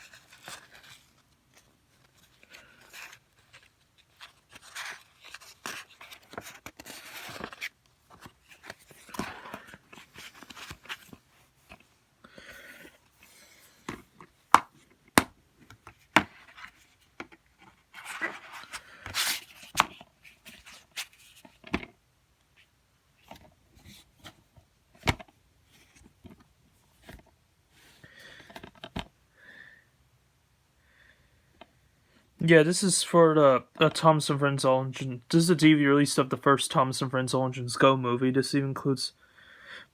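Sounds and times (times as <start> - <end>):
plastic cases rustling and scraping: 0.0 - 29.2.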